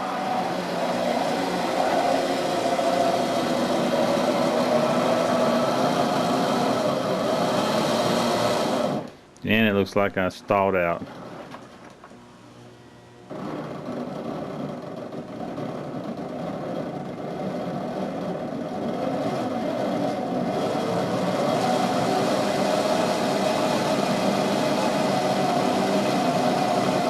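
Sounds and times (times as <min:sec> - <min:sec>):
model train electric motor straining: 0:13.3 - 0:27.0.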